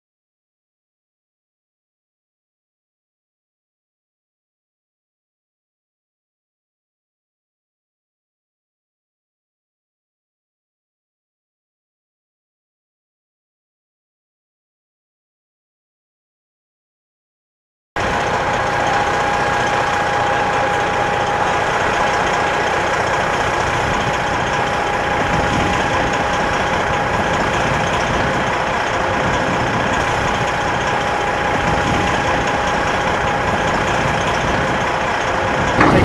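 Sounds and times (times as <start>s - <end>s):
heavy truck engine running: 18.0s - 36.0s
constant whine: 35.1s - 36.0s.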